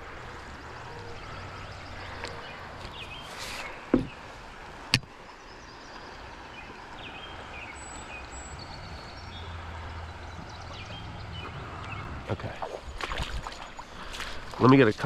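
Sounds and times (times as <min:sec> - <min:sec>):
rain and creek water hissing: 0:00.0 - 0:15.0
dull thump: 0:03.9 - 0:04.2.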